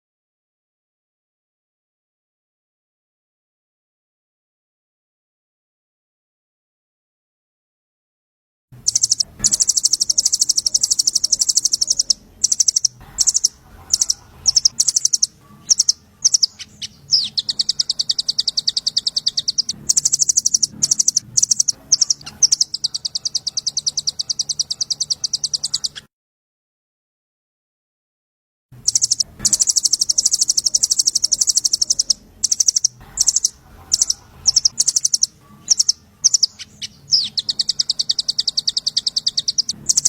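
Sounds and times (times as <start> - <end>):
faint low hum: 8.8 - 26.0, 28.8 - 40.0
songbird high-pitched trill: 8.8 - 26.1, 28.8 - 40.0.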